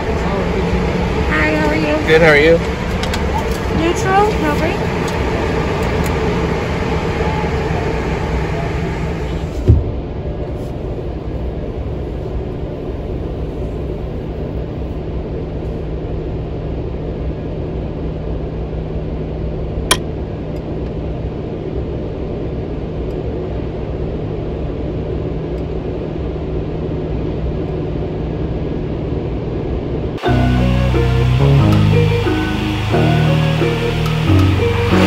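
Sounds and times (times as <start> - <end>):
vehicle engine idling: 0.0 - 9.7, 30.2 - 35.0
steady low hum: 0.0 - 35.0.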